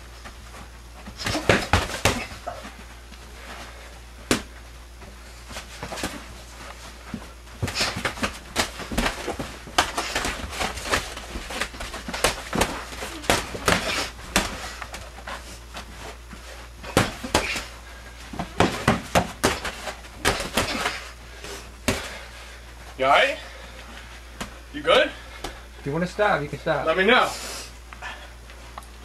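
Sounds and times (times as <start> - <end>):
scuffling knocks and thuds: 0.2 - 21.2.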